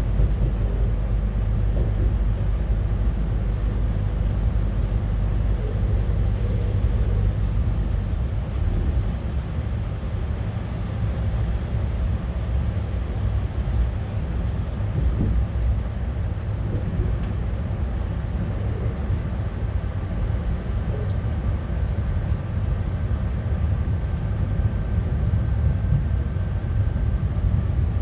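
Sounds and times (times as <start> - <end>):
electric train wheels on rails: 0.0 - 16.0.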